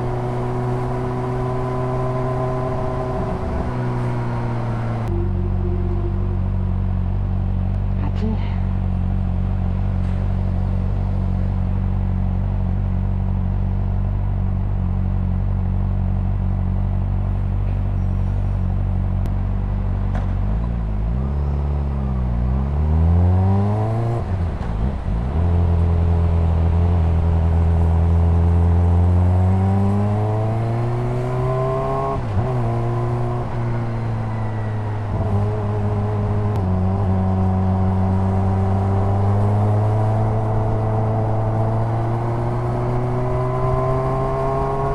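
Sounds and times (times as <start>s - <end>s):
motorcycle engine idling and revving: 0.0s - 44.9s.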